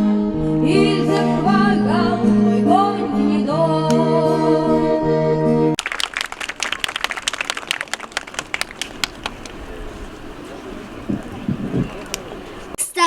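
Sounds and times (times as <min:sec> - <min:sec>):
audience applause: 0:05.8 - 0:12.8.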